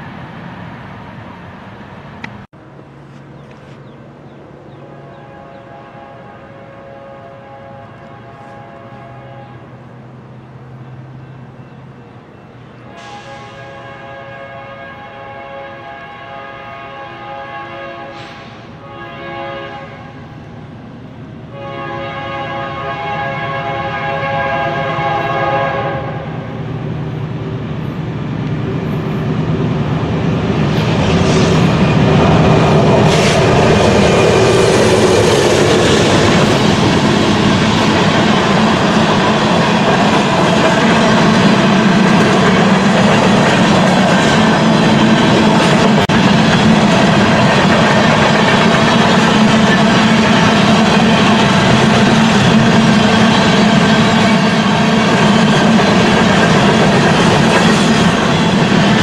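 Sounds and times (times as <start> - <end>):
train passing close: 0.0 - 59.0
locomotive air horn blasts: 4.8 - 9.8, 12.9 - 20.4, 21.5 - 26.6.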